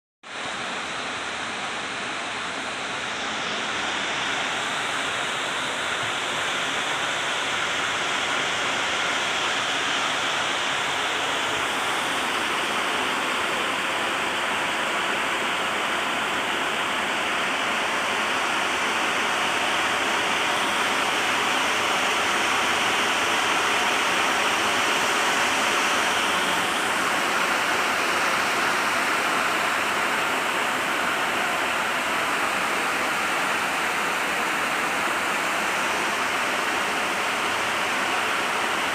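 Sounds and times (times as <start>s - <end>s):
heavy rain hissing: 0.4s - 38.9s.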